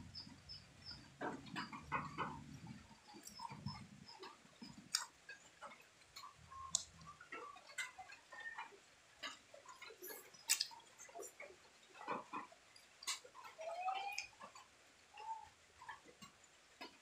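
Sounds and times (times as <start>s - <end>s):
wet chewing and lip smacks: 3.1s - 8.5s, 9.2s - 13.2s.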